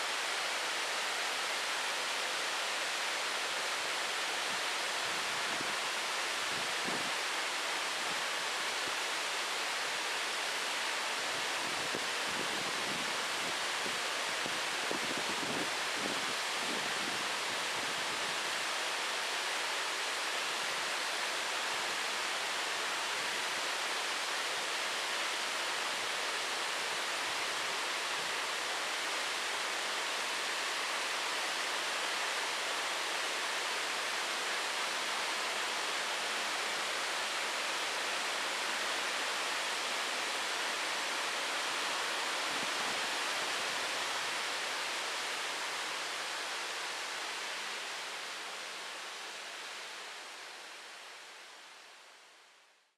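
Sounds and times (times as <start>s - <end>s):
waterfall rushing: 0.0s - 51.8s.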